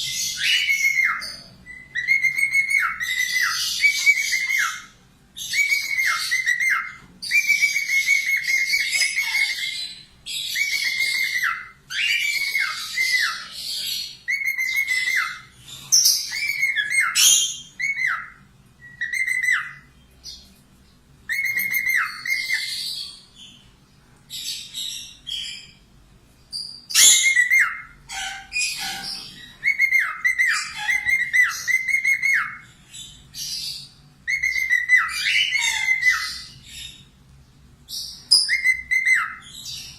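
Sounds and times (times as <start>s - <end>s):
budgerigar chattering and warbling: 27.0s - 32.6s, 34.3s - 36.5s.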